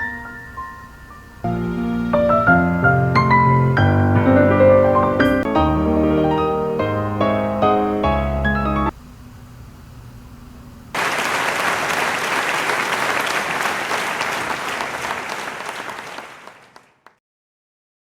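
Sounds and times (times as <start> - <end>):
audience applauding: 11.0 - 17.2.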